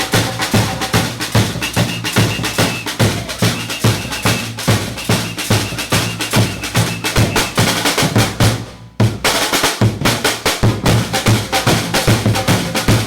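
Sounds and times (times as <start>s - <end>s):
samba percussion group drumming: 0.0s - 13.0s.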